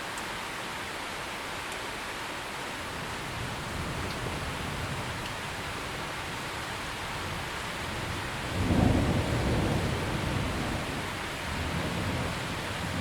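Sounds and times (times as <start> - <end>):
steady rain: 0.0 - 13.0
thunder rumbling: 2.9 - 13.0.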